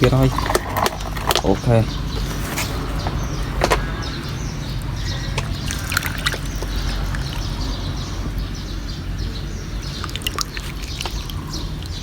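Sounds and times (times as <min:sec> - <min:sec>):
shallow water sloshing and splashing: 0:00.3 - 0:08.6, 0:09.8 - 0:12.0
water dripping: 0:03.4 - 0:12.0.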